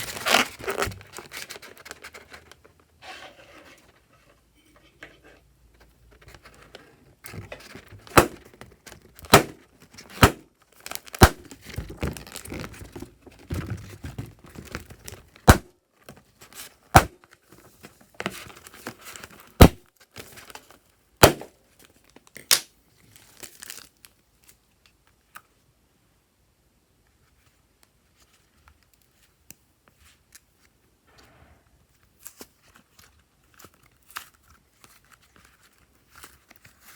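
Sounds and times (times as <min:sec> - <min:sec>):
slime squishing and crackling: 0:09.2 - 0:12.9.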